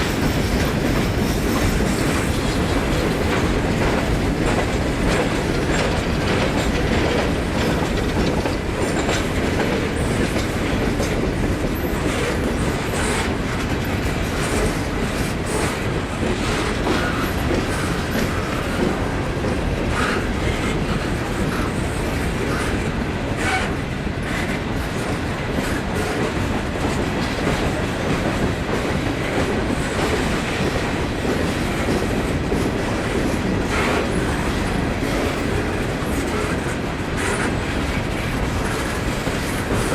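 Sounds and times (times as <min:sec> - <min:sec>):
train wheel squeals: 0:00.0 - 0:26.2
train wheels clicking over rail joints: 0:00.0 - 0:39.9.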